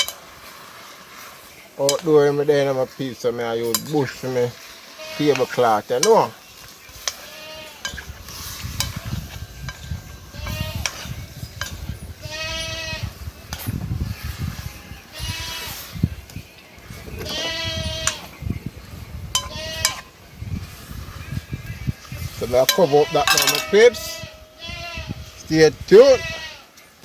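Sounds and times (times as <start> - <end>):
livestock bleating: 4.9 - 5.8, 7.1 - 7.9, 10.3 - 11.0, 12.2 - 13.1, 14.1 - 15.8, 17.2 - 18.3, 19.4 - 20.1, 22.8 - 25.2, 26.0 - 26.8.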